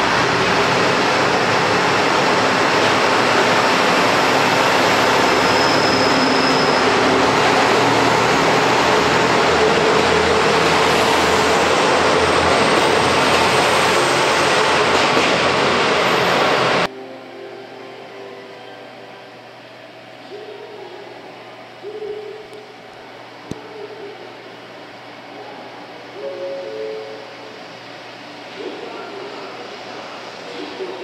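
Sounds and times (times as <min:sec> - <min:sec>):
train wheels and motors rumbling: 0:00.0 - 0:16.9
brief high squeal: 0:05.2 - 0:07.1.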